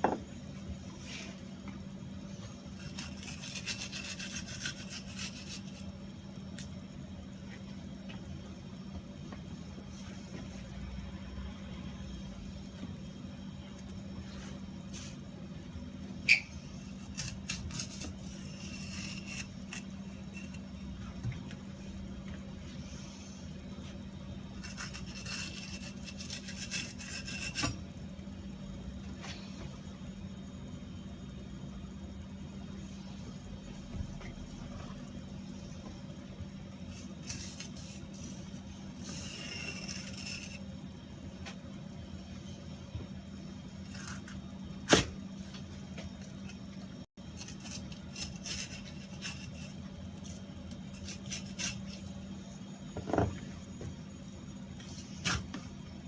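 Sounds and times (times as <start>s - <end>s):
steady low hum: 0.0s - 56.0s
knife scraping through fish: 2.7s - 5.9s, 16.3s - 20.6s, 24.6s - 27.8s, 36.9s - 40.7s, 43.8s - 44.4s, 47.2s - 52.1s.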